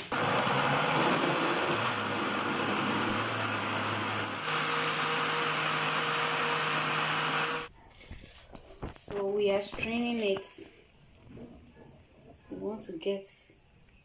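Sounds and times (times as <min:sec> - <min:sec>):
electric blender motor whirring: 0:00.0 - 0:07.7.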